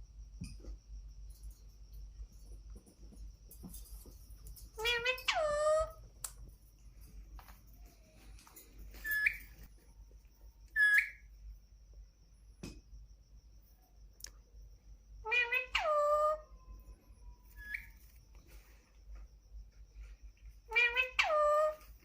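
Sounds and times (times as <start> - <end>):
parakeet calling: 4.8 - 6.0, 9.0 - 9.4, 10.8 - 11.2, 15.2 - 16.4, 20.7 - 21.8.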